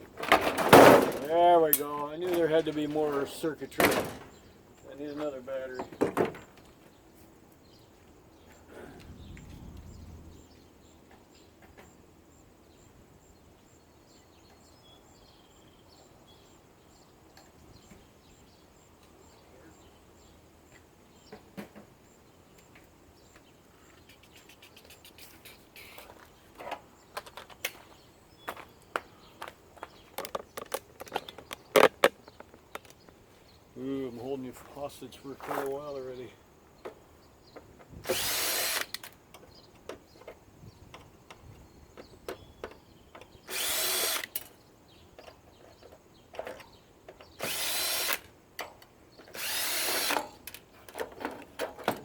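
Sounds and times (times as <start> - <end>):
faint bird chirps: 12.7 - 20.4, 22.6 - 27.2
tools clicking and knocking: 30.1 - 33.2, 45.2 - 52.0.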